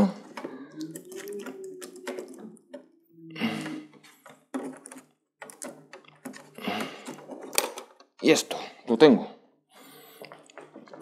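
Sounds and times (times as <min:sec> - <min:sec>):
plastic and metal parts scraping: 0:03.6 - 0:08.1.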